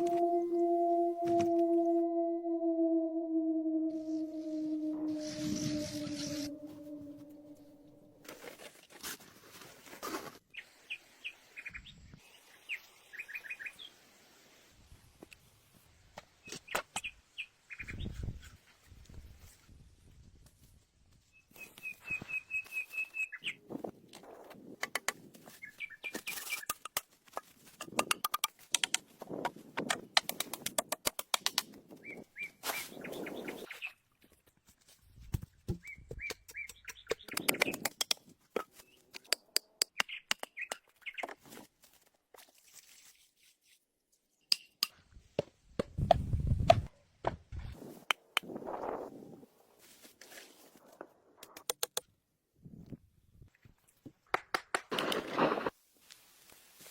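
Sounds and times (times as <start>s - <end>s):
bird chirping: 0.0s - 8.2s.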